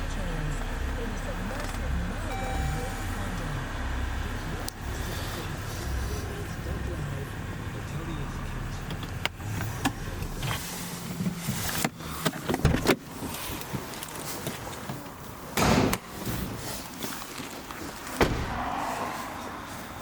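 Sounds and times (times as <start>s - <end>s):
clicks and knocks of car handling: 8.8s - 16.6s, 17.2s - 18.6s.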